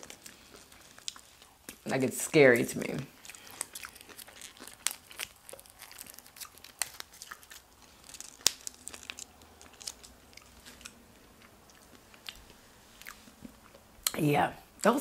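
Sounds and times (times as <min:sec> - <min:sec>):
wet chewing clicks and smacks: 0:00.0 - 0:01.9, 0:03.2 - 0:07.7.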